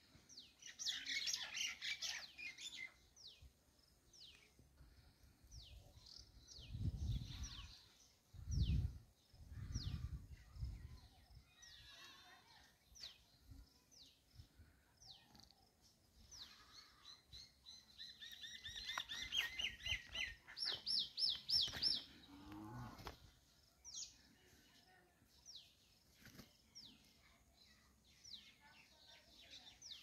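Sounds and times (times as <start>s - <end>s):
fast loud bird chirping: 18.0s - 22.0s.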